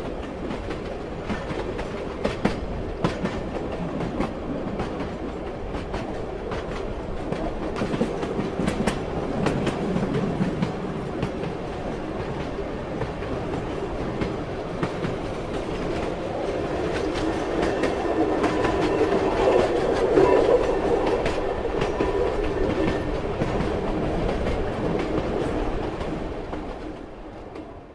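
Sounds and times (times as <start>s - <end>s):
wheels clacking over rail joints: 0.0s - 27.7s
train rumbling: 0.0s - 27.9s.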